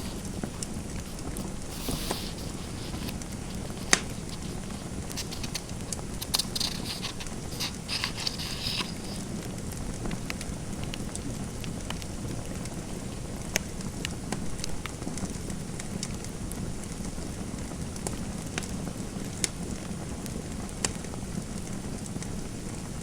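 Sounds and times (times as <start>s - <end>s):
pen scratching on paper: 0.0s - 9.3s
fireplace fire crackling: 0.0s - 23.0s.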